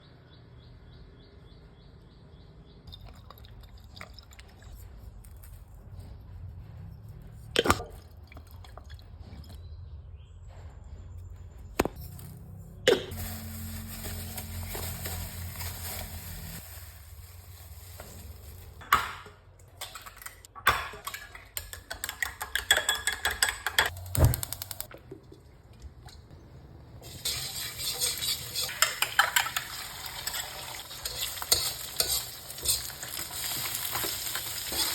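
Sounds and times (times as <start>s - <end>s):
utensils and dishes clinking: 18.3s - 24.0s, 27.0s - 34.9s
food sizzling in a hot pan: 27.0s - 34.9s.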